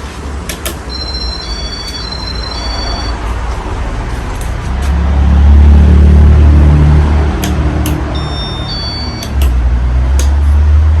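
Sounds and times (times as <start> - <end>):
sharp clicks: 0.5 - 0.9, 7.4 - 8.1, 9.2 - 9.6, 10.2 - 10.4
brief high tone: 0.9 - 3.3.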